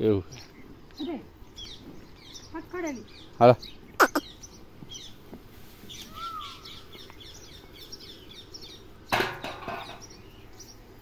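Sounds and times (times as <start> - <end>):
small birds chirping: 0.0 - 11.0
arched bird call: 3.9 - 4.5, 5.9 - 7.2.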